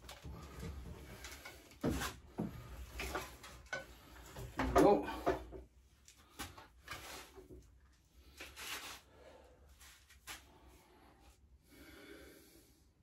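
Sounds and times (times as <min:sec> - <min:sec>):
faint knocks and rustling: 0:00.0 - 0:07.8.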